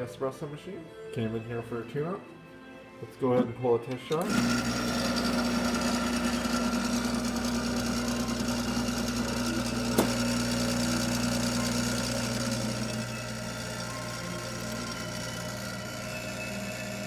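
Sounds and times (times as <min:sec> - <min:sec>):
espresso machine pump humming: 0:04.2 - 0:17.0.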